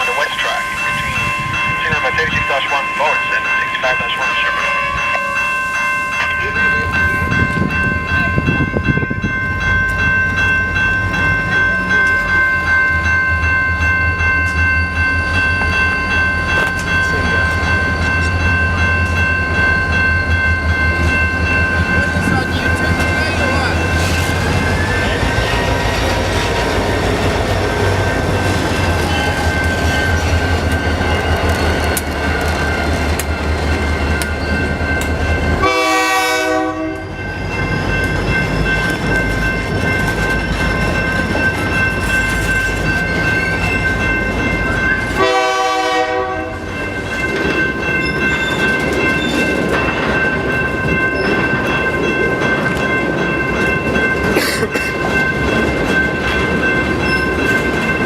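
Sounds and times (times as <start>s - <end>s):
high ringing tones: 0.0s - 54.3s
freight train wheels rumbling: 0.0s - 58.0s
wheels clickety-clack: 20.9s - 35.2s, 37.6s - 45.2s, 46.8s - 58.0s.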